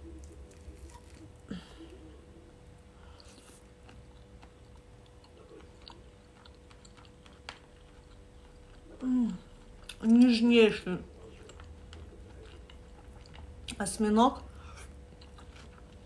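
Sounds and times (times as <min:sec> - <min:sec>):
chewing with wet mouth clicks: 0:03.2 - 0:10.2, 0:11.1 - 0:13.8, 0:14.8 - 0:16.0.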